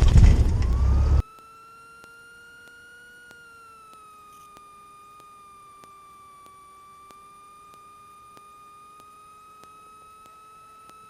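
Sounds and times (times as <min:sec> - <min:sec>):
aircraft engine running: 0:00.0 - 0:01.2
high electrical whine: 0:00.0 - 0:11.0
faint regular ticks: 0:00.6 - 0:11.0.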